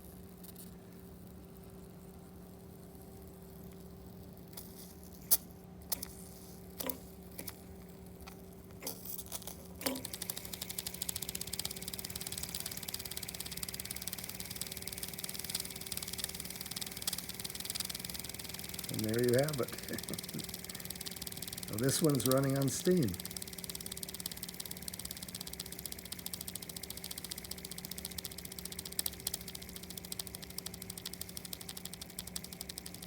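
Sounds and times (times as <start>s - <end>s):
small steam engine ticking: 6.8s - 33.0s.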